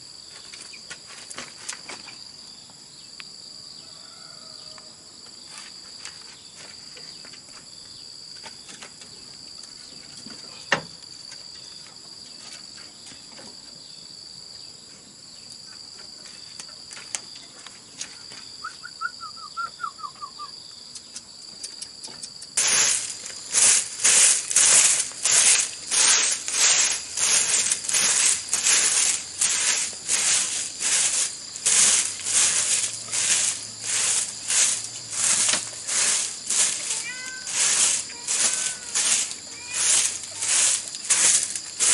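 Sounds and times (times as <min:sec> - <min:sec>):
insects droning: 0:00.0 - 0:41.9
rhythmic rasping strokes: 0:22.6 - 0:41.9.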